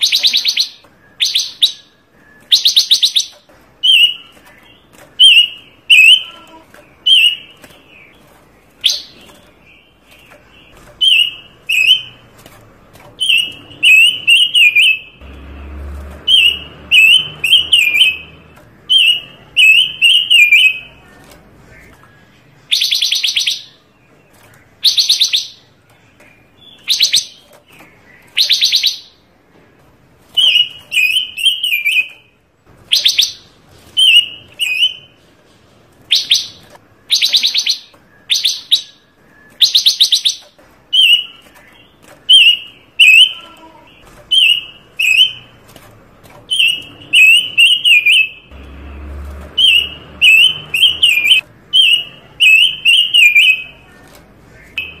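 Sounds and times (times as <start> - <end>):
songbird singing trills and chirps: 0.0 - 29.2, 36.1 - 45.6.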